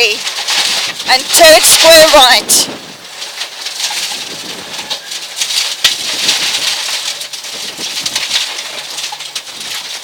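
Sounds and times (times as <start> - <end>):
gravel striking car underside: 0.0 - 10.0.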